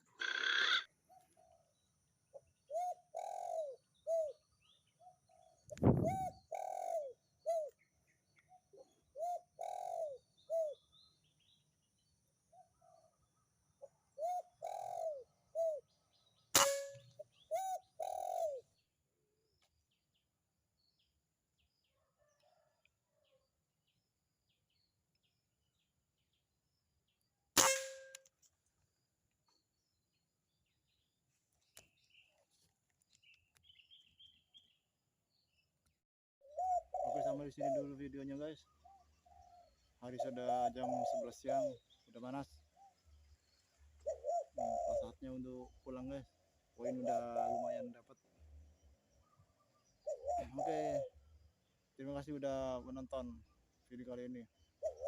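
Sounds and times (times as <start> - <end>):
dove cooing: 0.0 - 1.7, 2.3 - 4.4, 5.0 - 7.8, 8.7 - 10.8, 13.8 - 15.9, 17.3 - 18.7, 36.4 - 41.9, 44.0 - 45.4, 46.8 - 48.2, 50.0 - 51.2, 54.8 - 55.0
sharp ringing cracks: 16.6 - 17.1, 27.6 - 28.3.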